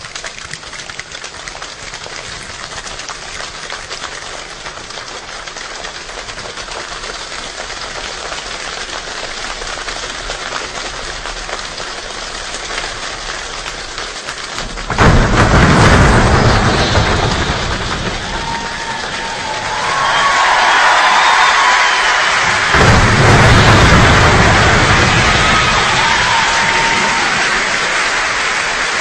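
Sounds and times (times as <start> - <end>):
steady rainfall: 0.0 - 29.0
deep surge: 14.6 - 28.6.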